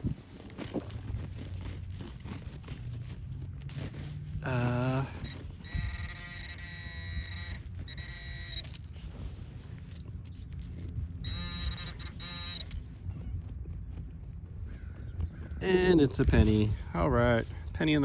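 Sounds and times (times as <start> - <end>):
metal detector buzzing: 3.8 - 9.7, 10.6 - 13.2.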